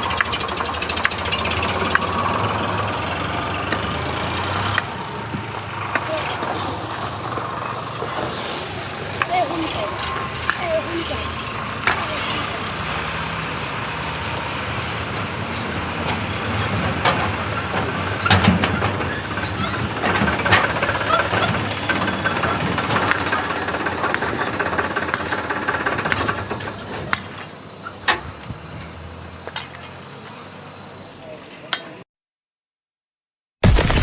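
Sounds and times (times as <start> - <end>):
diesel engine running: 0.0 - 31.7
sharp metallic knocks: 16.6 - 28.4.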